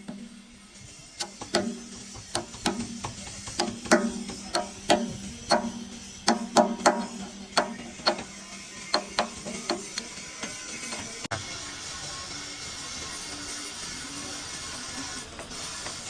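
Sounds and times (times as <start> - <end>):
hammer on metal: 1.2 - 11.3.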